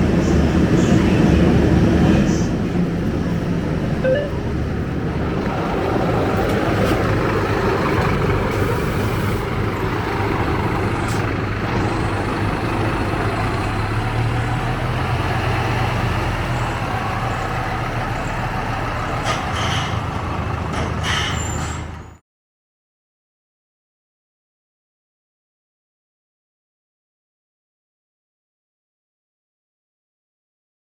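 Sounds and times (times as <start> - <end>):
bus diesel engine running: 0.0 - 22.2.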